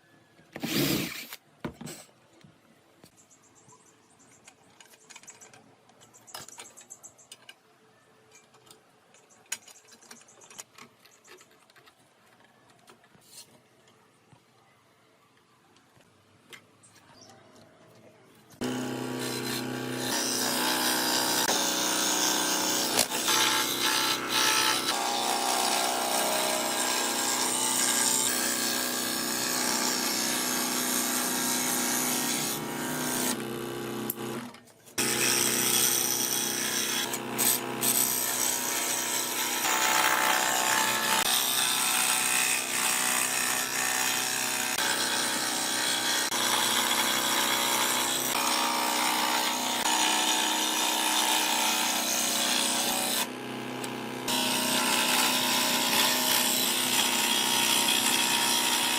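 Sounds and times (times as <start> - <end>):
power tool cutting wood: 18.6 - 58.9.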